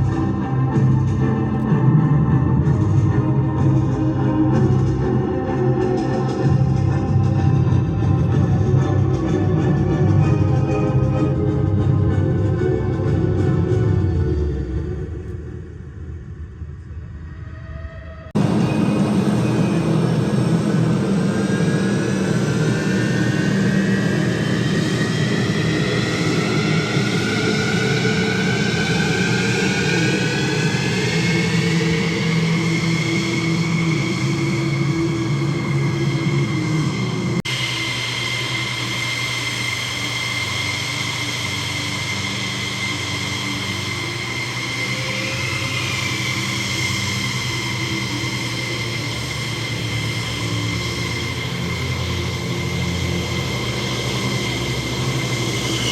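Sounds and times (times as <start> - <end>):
fighter jet engines roaring: 18.3 - 55.9.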